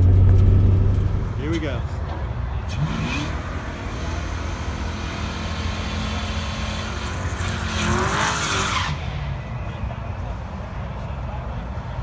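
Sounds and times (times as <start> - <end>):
rushing noise: 0.0 - 5.8
car engine running: 0.0 - 8.6.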